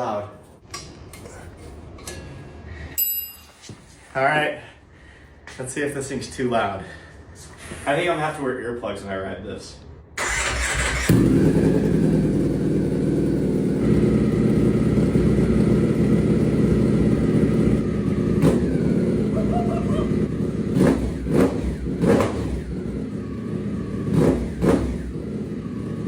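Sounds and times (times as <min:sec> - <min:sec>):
motorcycle engine idling and revving: 0:10.2 - 0:26.0.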